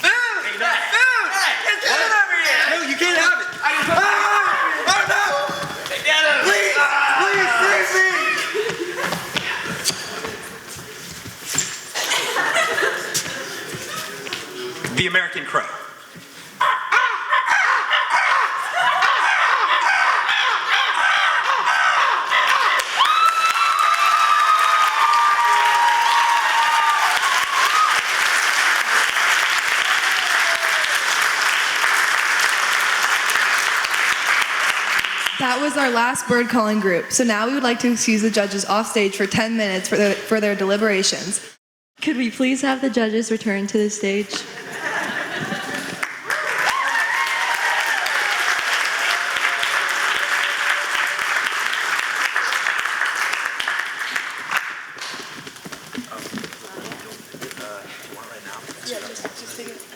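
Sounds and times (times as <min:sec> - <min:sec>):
audience applauding: 0:22.0 - 0:36.0, 0:45.0 - 0:55.4.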